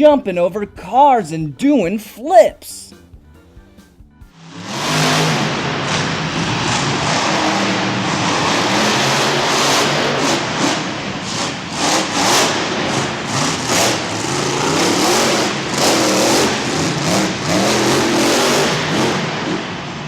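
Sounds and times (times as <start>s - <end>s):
truck engine revving: 4.2s - 20.0s.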